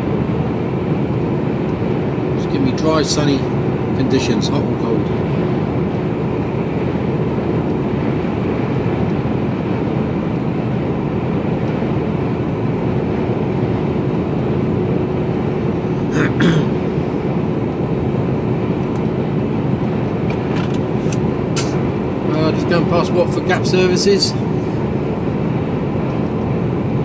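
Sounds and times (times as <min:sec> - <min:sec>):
engine and road noise drone: 0:00.0 - 0:27.0
brief hissing rattle: 0:20.5 - 0:21.8.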